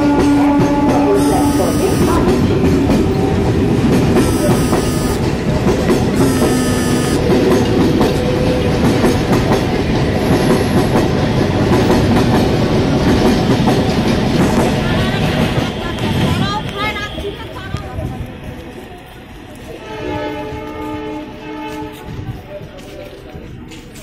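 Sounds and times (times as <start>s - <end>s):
train rumbling: 0.0s - 24.0s
short high-pitched tones: 1.2s - 2.4s, 4.2s - 5.3s, 6.2s - 7.3s.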